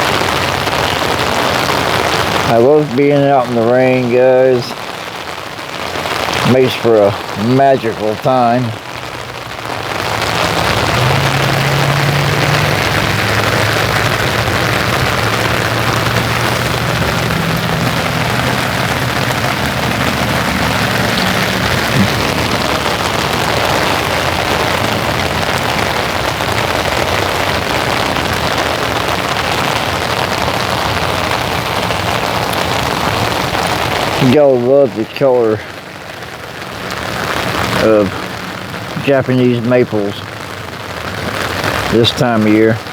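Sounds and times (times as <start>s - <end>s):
rain pattering: 0.0s - 42.9s.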